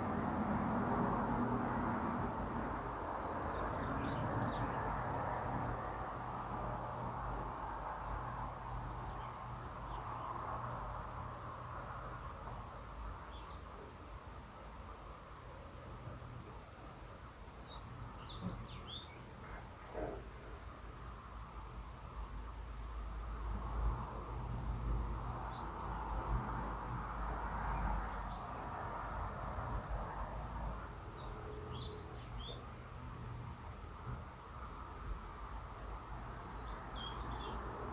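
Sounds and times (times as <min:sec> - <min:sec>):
bird chirping song: 0:02.6 - 0:05.3, 0:08.1 - 0:14.1, 0:17.6 - 0:20.2, 0:25.1 - 0:26.4, 0:27.3 - 0:28.9, 0:29.5 - 0:34.8, 0:35.4 - 0:37.9.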